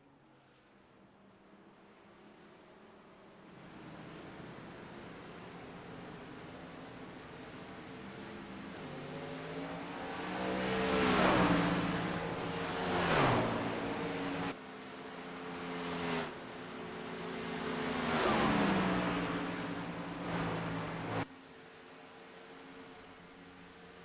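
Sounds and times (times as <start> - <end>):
racing trucks passing by: 7.2 - 21.3.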